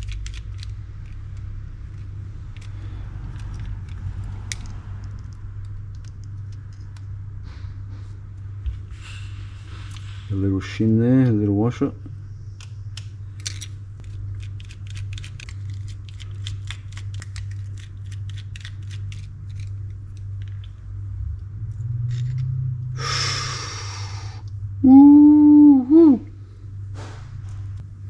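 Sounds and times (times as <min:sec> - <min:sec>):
fishing reel parts clicking: 0:00.0 - 0:06.8.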